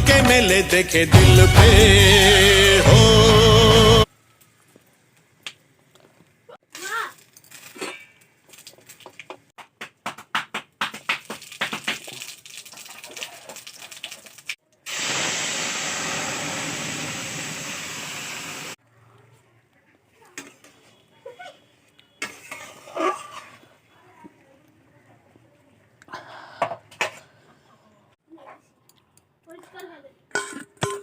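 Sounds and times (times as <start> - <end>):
loud steady hiss: 14.9 - 18.8.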